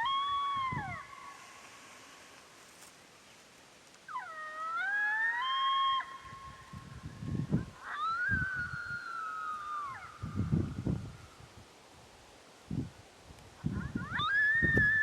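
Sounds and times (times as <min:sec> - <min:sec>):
electronic coyote howls: 0:04.1 - 0:06.4, 0:07.8 - 0:10.2.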